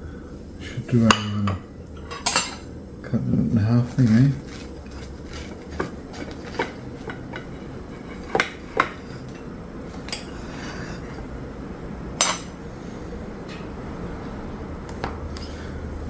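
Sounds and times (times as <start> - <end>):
knife scraping a plate: 4.4 - 11.3.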